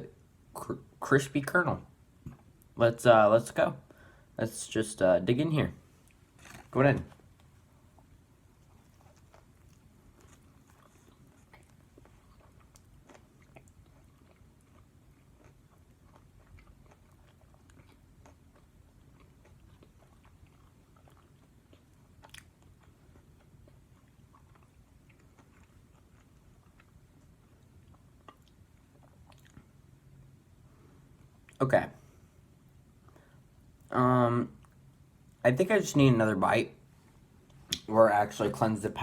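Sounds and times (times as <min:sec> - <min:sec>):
person chewing crunchy food: 0:06.0 - 0:29.8.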